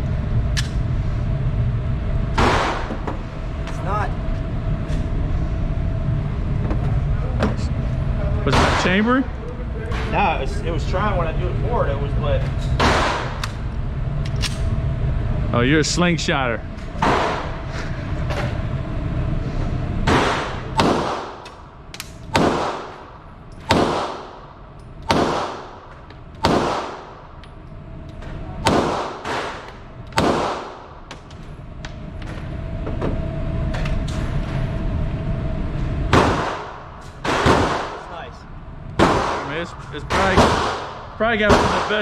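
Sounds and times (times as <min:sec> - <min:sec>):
distant gunshots: 0:20.1 - 0:21.4, 0:22.4 - 0:23.0, 0:23.7 - 0:24.4, 0:25.1 - 0:25.8, 0:26.4 - 0:27.2, 0:28.7 - 0:29.6, 0:30.2 - 0:30.9, 0:36.1 - 0:38.1, 0:39.0 - 0:42.0
pistol shots echoing: 0:20.1 - 0:21.4, 0:22.3 - 0:23.0, 0:23.6 - 0:24.4, 0:25.1 - 0:25.8, 0:26.4 - 0:27.2, 0:28.6 - 0:31.0, 0:40.1 - 0:42.0.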